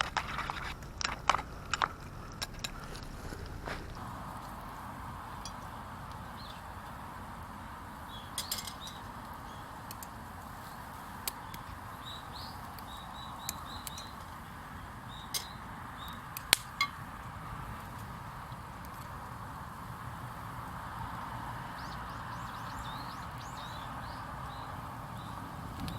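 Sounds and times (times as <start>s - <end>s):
outdoor background hiss: 0.0s - 25.9s
small bird chirping: 8.0s - 16.3s, 21.2s - 25.9s.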